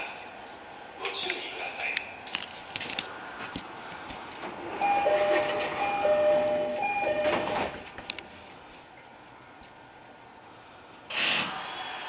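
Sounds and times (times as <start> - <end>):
electric train on rails: 4.3 - 8.8
two-pitch steady tones: 4.8 - 7.7.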